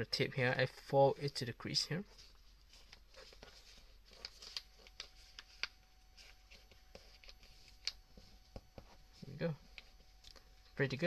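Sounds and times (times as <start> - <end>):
paper being folded and creased: 2.1 - 8.2.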